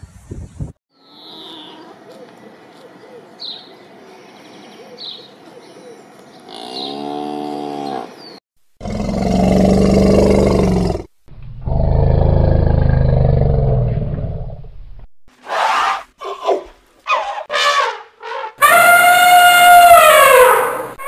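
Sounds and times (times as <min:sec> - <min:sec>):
cow mooing: 0:06.5 - 0:08.2
elephant calling: 0:15.5 - 0:21.0.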